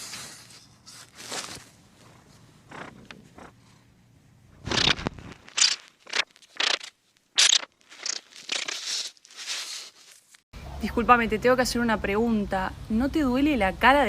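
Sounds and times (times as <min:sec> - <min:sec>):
scraping and rustling: 0:00.0 - 0:03.5, 0:04.6 - 0:10.4.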